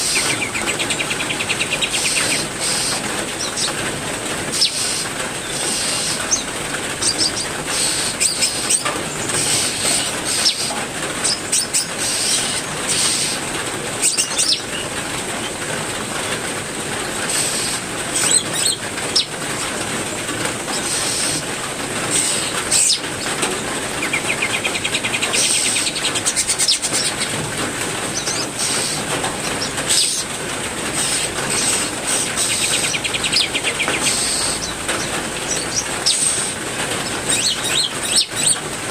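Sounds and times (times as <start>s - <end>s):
songbirds chirping: 0.0s - 13.4s, 22.1s - 38.6s
steady rain hiss: 0.0s - 38.9s.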